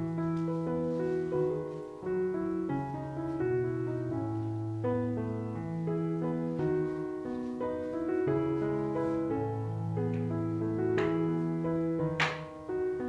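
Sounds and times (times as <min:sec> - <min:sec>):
soft slow piano music: 0:00.0 - 0:13.0.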